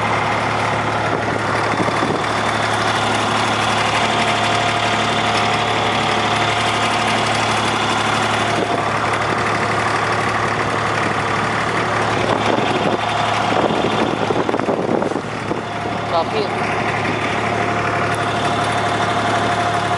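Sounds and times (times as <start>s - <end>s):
boat engine running: 0.0s - 19.9s.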